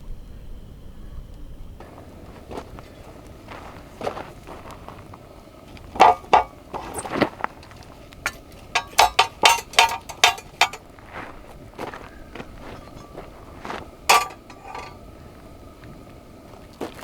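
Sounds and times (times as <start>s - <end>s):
hard objects knocking and clinking: 5.9s - 10.8s, 14.1s - 15.0s.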